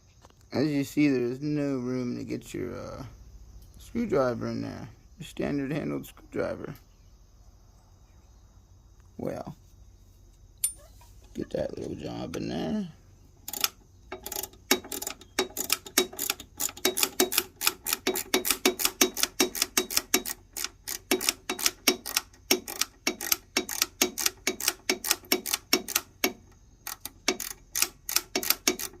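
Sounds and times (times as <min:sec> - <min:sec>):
bit driver ratcheting clicks: 0:13.4 - 0:29.0.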